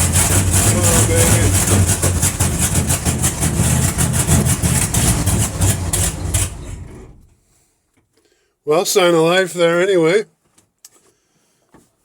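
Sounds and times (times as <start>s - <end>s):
engine cranking and catching: 0.0s - 7.4s.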